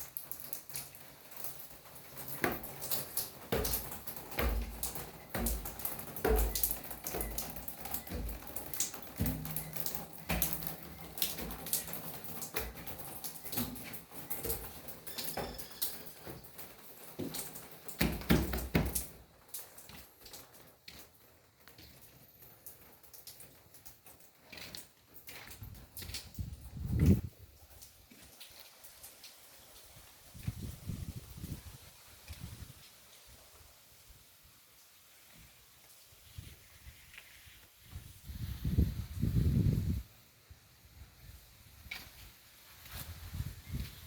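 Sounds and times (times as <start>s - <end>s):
sharp taps and clicks: 2.4s - 12.9s.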